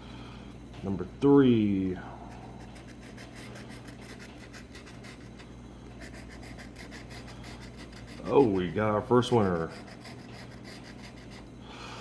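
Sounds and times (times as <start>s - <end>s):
scratching lottery ticket: 2.2s - 11.5s.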